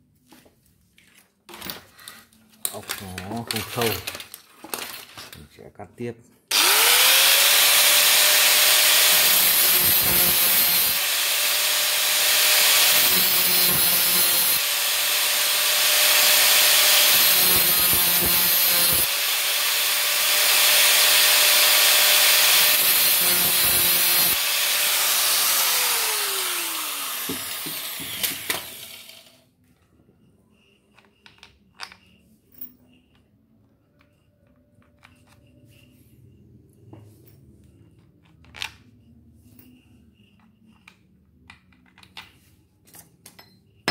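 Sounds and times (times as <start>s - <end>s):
power cutting tool cutting metal: 6.5s - 29.4s.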